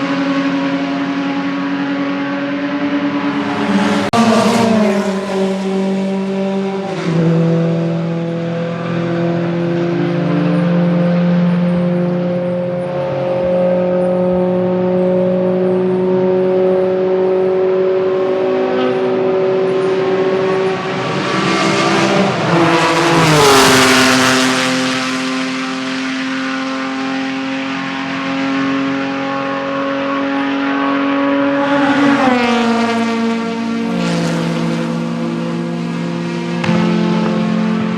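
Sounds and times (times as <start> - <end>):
race car engines at high revs: 0.0 - 37.9
race car passing close: 0.0 - 37.9.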